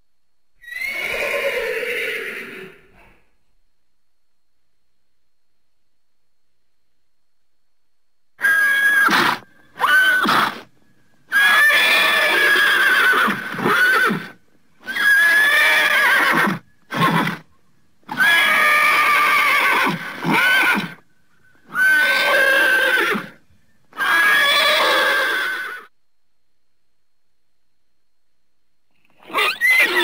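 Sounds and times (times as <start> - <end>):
horse whinnying: 0.6 - 3.0, 8.4 - 10.7, 11.3 - 17.4, 18.1 - 21.0, 21.7 - 25.9, 29.2 - 30.0.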